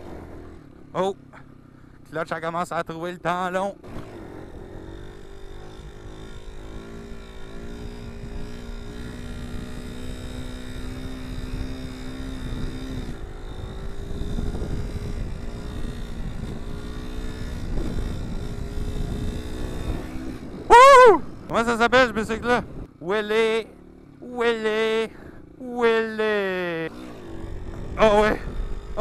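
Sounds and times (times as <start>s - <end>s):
motorcycle engine revving: 0.0s - 29.0s
low wind rumble: 4.0s - 23.1s, 27.0s - 29.0s.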